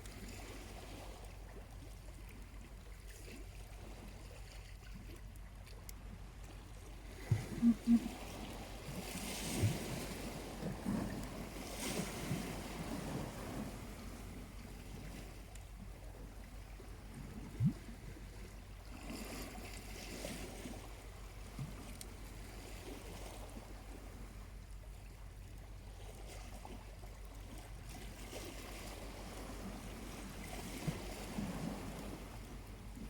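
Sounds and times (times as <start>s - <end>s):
small waves lapping on shore: 0.0s - 33.0s.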